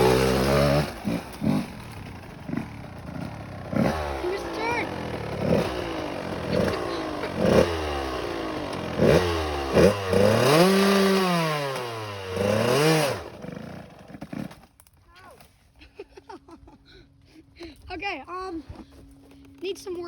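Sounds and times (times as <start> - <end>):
dirt bike engine revving: 0.0 - 14.6.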